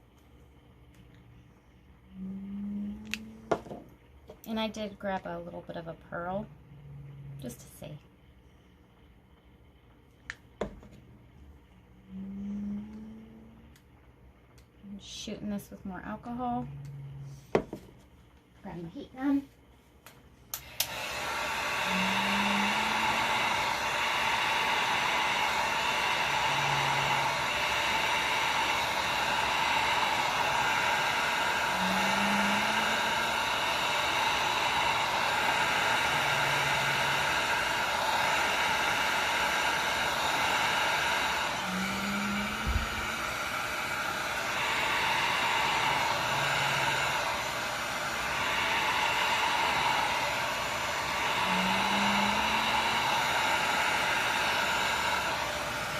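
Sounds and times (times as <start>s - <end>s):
heat gun blowing: 20.5s - 55.9s.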